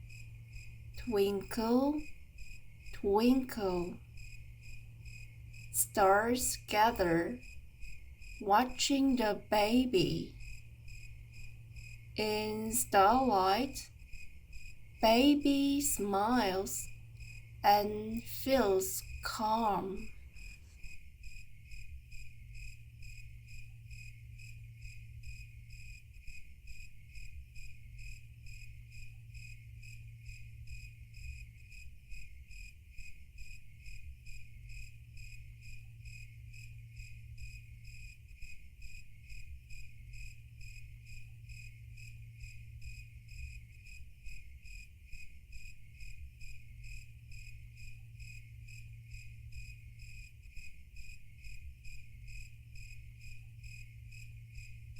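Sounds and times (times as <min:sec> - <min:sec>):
low steady hum: 0:00.0 - 0:20.7, 0:45.7 - 0:54.9
crickets chirping: 0:00.0 - 0:54.9.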